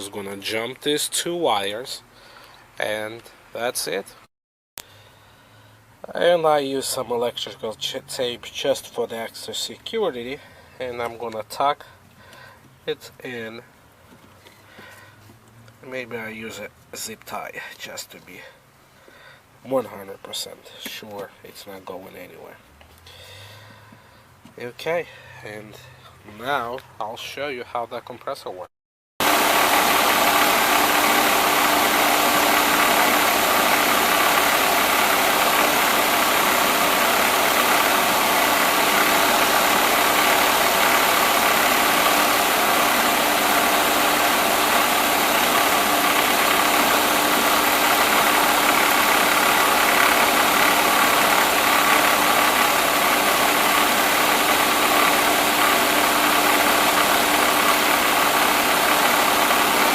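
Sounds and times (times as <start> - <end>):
ac compressor whirring: 29.2 - 59.9
car engine idling: 29.2 - 59.9.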